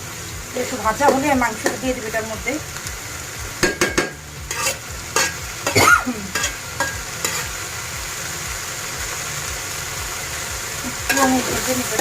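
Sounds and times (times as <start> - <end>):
food frying in oil: 0.0 - 12.0
spoon stirring and scraping: 4.5 - 5.4, 6.3 - 7.5.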